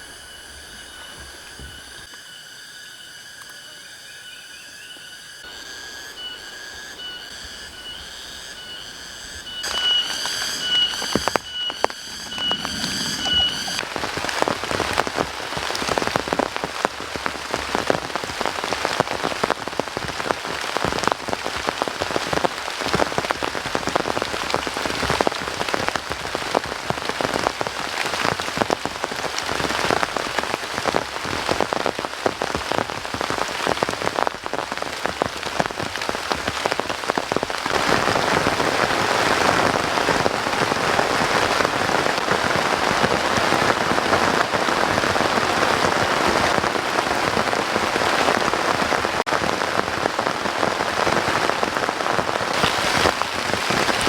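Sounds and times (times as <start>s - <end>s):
high whistling tone: 0.0s - 13.8s
pulsing buzz: 4.8s - 13.8s
heavy rain falling: 9.6s - 54.0s.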